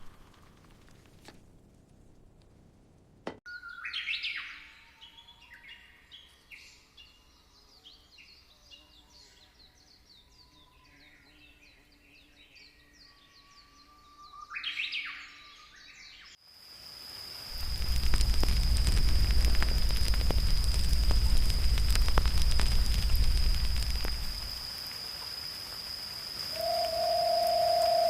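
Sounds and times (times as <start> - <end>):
songbirds chirping and singing: 3.6 - 16.4.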